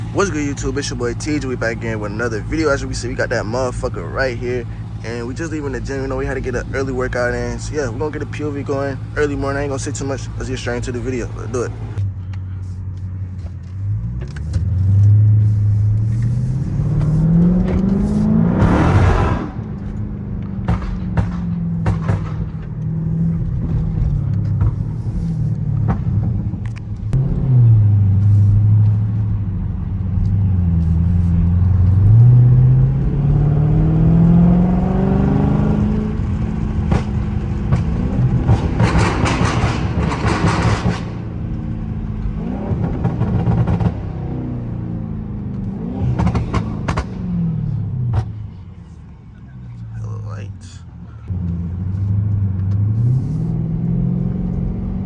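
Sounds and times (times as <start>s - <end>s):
crackling exhaust pops: 0.0s - 32.2s, 35.7s - 44.1s, 45.4s - 47.4s
car engine revving: 0.0s - 55.0s.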